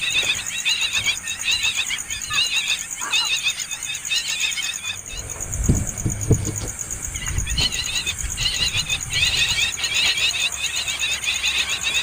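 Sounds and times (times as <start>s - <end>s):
nestling birds begging calls: 0.0s - 12.0s
low thumps: 5.0s - 9.6s.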